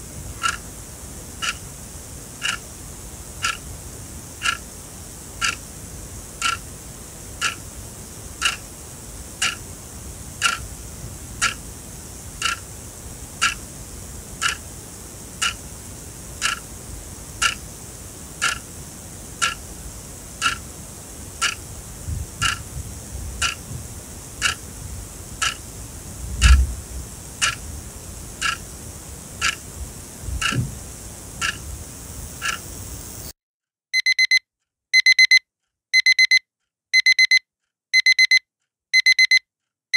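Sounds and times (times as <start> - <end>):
clock ticking: 5.4 - 5.6, 6.4 - 6.6, 7.4 - 7.6, 8.4 - 8.6, 9.4 - 9.6, 10.4 - 10.6, 11.4 - 11.6, 13.4 - 13.6, 14.4 - 14.6, 15.4 - 15.6, 16.4 - 16.6, 17.4 - 17.6, 19.4 - 19.6, 21.4 - 21.6, 23.4 - 23.6, 34.0 - 34.4, 35.0 - 35.4, 36.0 - 36.4, 37.0 - 37.4, 38.0 - 38.4, 39.0 - 39.4
dull low thump: 26.3 - 26.8, 30.3 - 30.8
alarm beeping in pulsed bursts: 36.0 - 36.4, 37.0 - 37.4, 38.0 - 38.4, 39.0 - 39.4.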